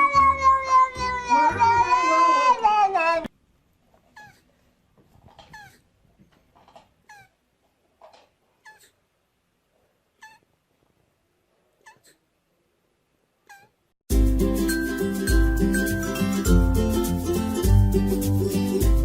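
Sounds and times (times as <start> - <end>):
cat mewing: 0.0 - 3.3, 4.1 - 4.5, 7.0 - 7.4, 13.4 - 13.8.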